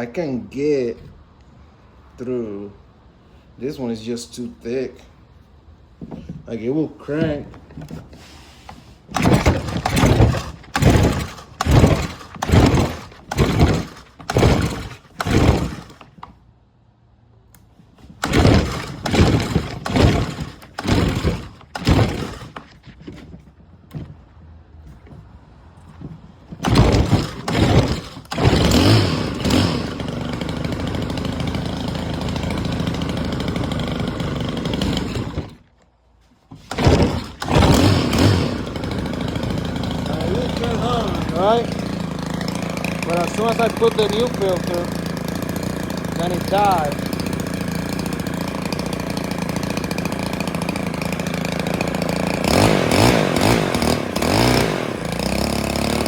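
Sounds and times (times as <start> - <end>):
recoil starter pulls: 6.0 - 16.5, 17.4 - 56.0
small engine running: 9.1 - 16.4, 18.0 - 23.4, 26.5 - 35.6, 36.6 - 56.0.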